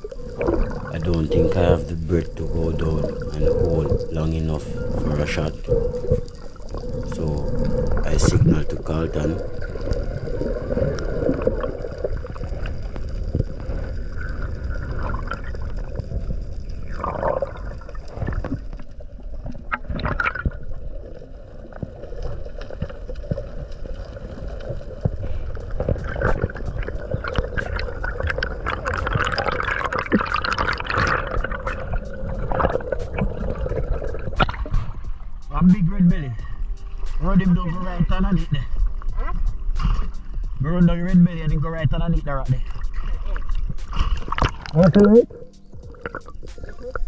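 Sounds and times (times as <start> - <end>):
sea water gurgling and sloshing: 0.0 - 47.0
underwater clicks and crackles: 0.0 - 47.0.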